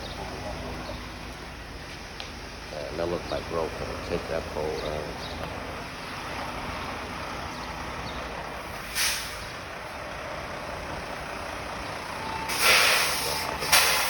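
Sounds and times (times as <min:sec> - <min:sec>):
street traffic: 0:00.0 - 0:14.0
truck engine running: 0:00.0 - 0:14.0
air brakes hissing: 0:08.6 - 0:09.6, 0:12.4 - 0:14.0.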